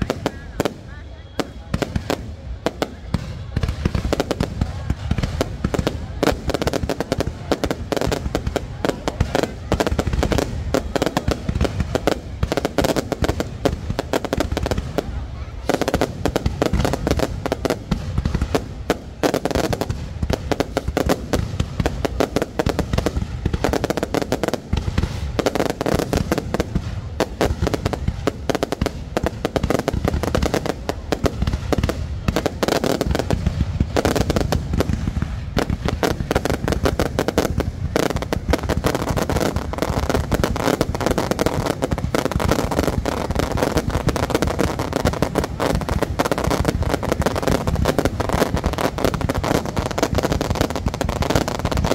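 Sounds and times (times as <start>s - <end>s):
firework bursts and crackles: 0.0s - 51.9s
heavy low firework booms: 0.0s - 51.9s.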